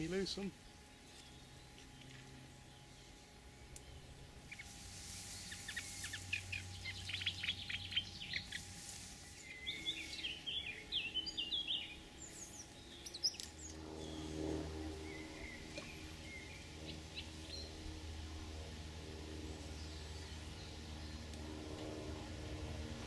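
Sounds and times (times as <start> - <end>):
songbird singing: 0.0 - 21.9.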